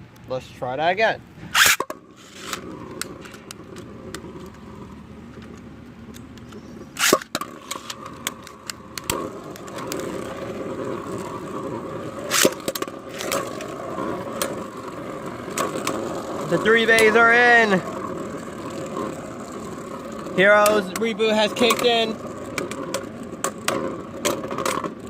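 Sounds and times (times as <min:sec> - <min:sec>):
spinning tops whirring: 0:01.5 - 0:03.3, 0:12.1 - 0:14.8.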